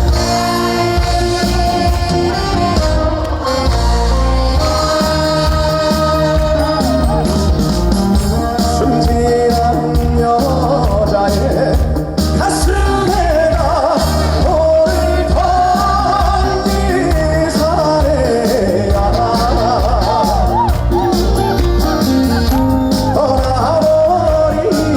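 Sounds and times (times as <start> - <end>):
band accompaniment with steady beat: 0.0 - 24.9
man singing with vibrato: 0.0 - 24.9.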